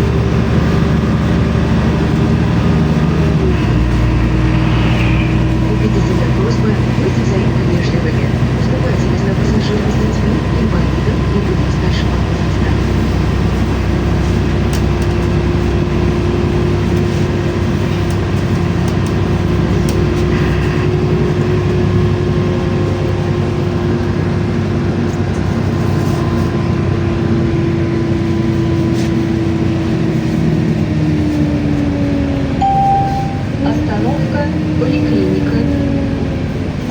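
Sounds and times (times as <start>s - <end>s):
bus engine and road rumble: 0.0s - 36.9s
whine falling in pitch: 3.6s - 5.9s, 32.6s - 33.6s.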